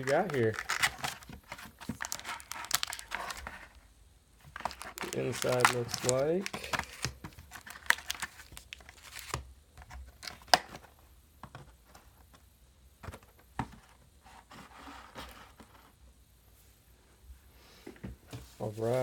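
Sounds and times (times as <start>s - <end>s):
soft crinkling: 0.0s - 10.9s.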